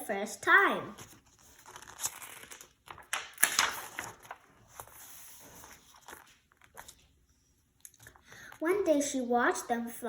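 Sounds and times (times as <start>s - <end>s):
paper rustling: 1.0s - 7.1s.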